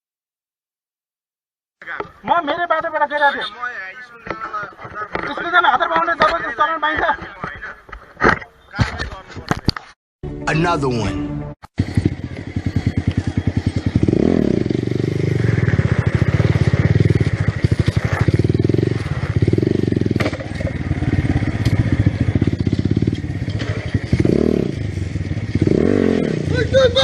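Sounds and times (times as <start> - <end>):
motorcycle engine revving: 11.6 - 27.0.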